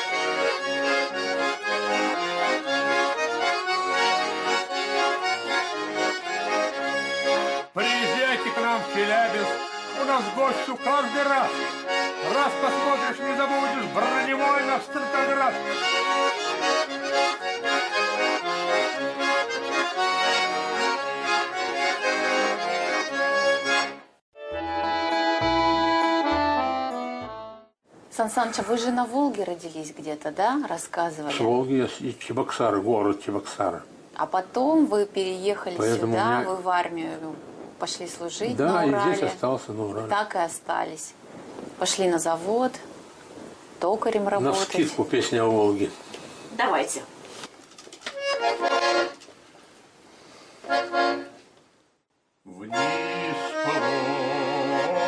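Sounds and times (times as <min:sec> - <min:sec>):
accordions playing chords: 0:00.0 - 0:27.8, 0:35.8 - 0:36.5, 0:38.4 - 0:39.4, 0:48.1 - 0:49.3, 0:50.6 - 0:51.4, 0:52.5 - 0:55.0
person singing verses: 0:52.5 - 0:55.0.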